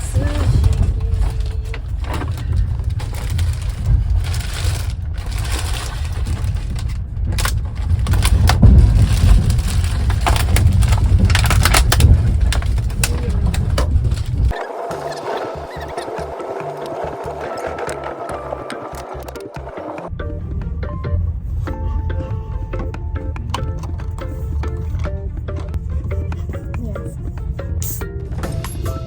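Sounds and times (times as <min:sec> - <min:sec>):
rattling clicks and knocks: 0:00.0 - 0:20.1
train carriage rumble: 0:00.0 - 0:29.0.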